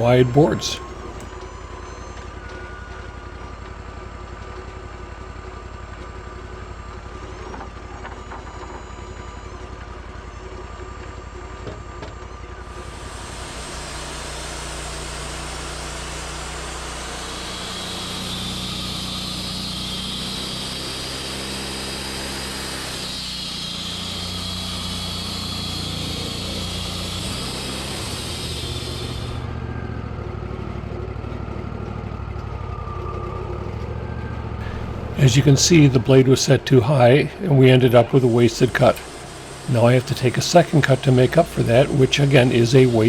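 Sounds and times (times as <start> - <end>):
sawmill engine running: 0.0 - 4.1, 12.6 - 43.0
saw blade cutting log: 12.7 - 29.4, 34.6 - 43.0.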